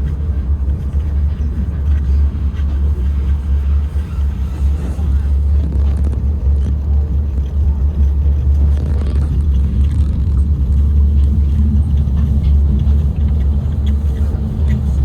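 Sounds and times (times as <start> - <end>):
monorail train rumbling: 0.0 - 15.0.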